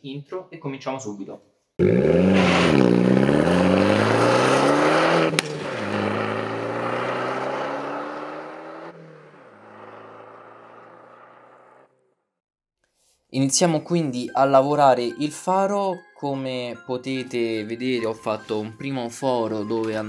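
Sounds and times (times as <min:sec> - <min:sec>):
car engine revving: 0:01.8 - 0:12.2.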